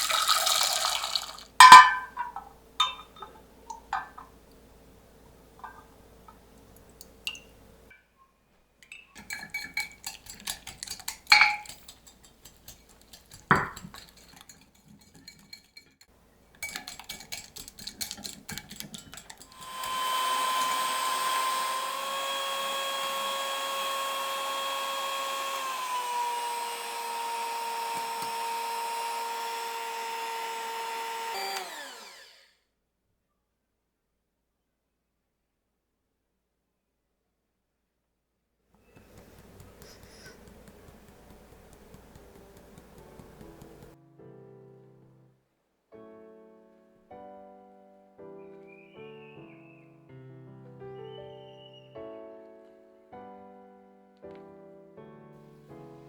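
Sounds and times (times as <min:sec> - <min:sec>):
kitchen utensils and dishes clinking: 0:00.0 - 0:04.5, 0:08.8 - 0:20.0
electric kitchen mixer running: 0:19.4 - 0:32.5, 0:39.0 - 0:44.0.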